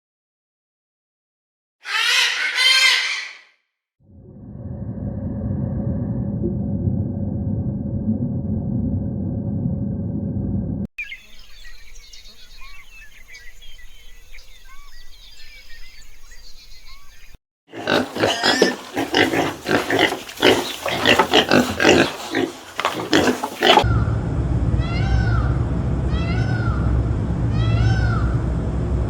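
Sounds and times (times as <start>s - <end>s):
animal grunting and squealing: 1.8s - 3.4s, 17.7s - 23.9s
faint high chirping calls: 11.0s - 17.4s.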